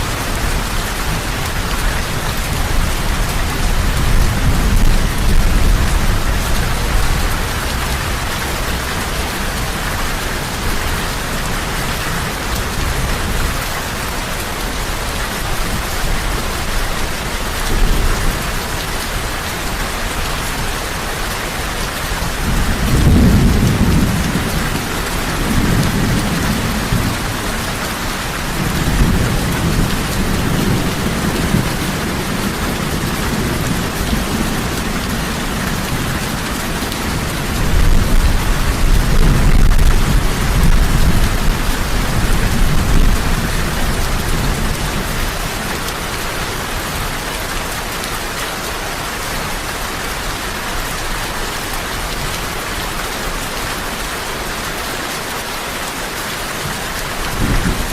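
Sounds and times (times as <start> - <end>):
heavy rain: 0.0 - 57.9
rolling thunder: 22.4 - 45.4.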